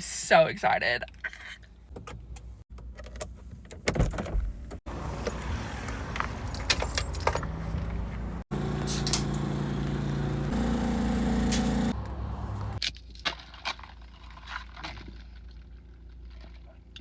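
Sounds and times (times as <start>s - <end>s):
engine hum: 4.8s - 12.8s
keys jangling: 6.4s - 7.8s.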